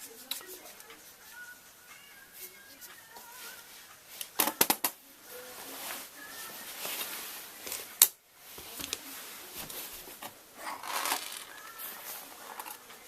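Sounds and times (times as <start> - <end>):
tools rustling and clattering: 8.6 - 13.0.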